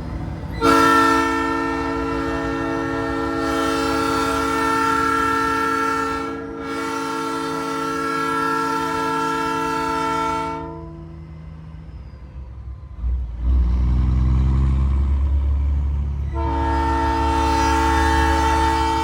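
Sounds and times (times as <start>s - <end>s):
train horn chord: 0.6s - 11.2s, 16.3s - 19.0s.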